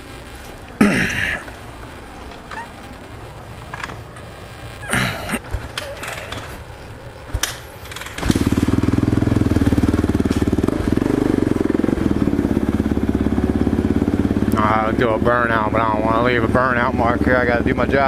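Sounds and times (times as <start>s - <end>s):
motorcycle engine starting and idling: 7.3s - 18.0s.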